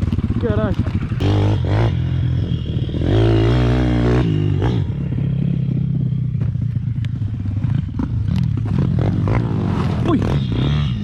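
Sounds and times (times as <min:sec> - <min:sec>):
motorbike engine revving: 0:00.0 - 0:11.0.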